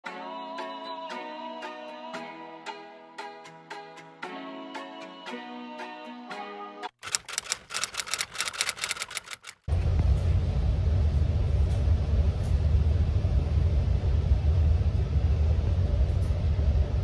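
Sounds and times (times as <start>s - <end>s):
train rumbling inside carriage: 9.7s - 17.0s.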